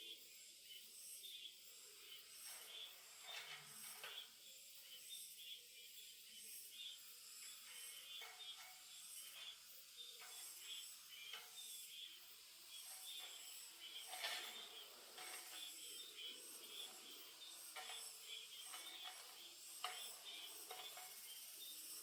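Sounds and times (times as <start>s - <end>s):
small birds chirping: 6.8s - 21.9s
steady high hiss: 8.6s - 22.0s.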